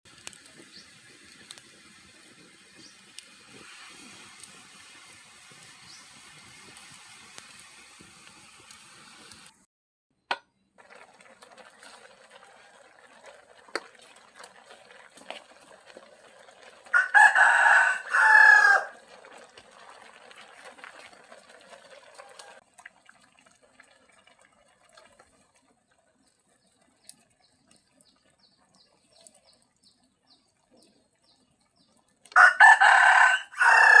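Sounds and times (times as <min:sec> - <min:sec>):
rooster crowing: 0:16.9 - 0:19.0, 0:32.4 - 0:34.0.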